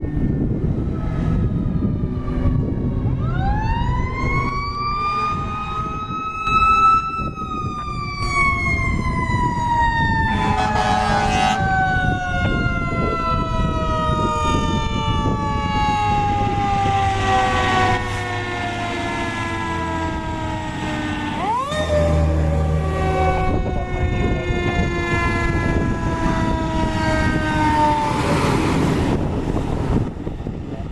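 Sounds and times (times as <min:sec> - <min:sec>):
diesel engine rumble: 0:00.0 - 0:30.9
mechanical siren wailing: 0:00.0 - 0:30.9.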